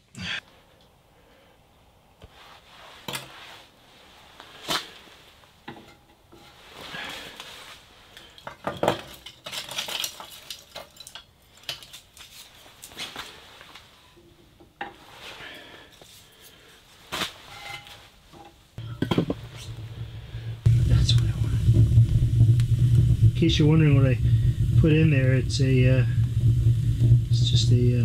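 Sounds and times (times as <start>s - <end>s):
kindling sticks clattering in stove: 8.2s - 13.0s, 18.8s - 19.8s.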